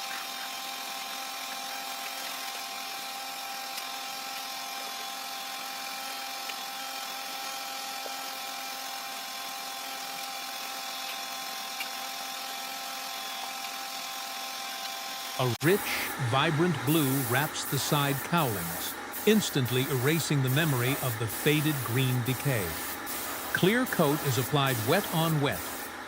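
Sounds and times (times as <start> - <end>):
air hissing in spray booth: 15.4 - 26.0
constant high hum: 15.4 - 26.0.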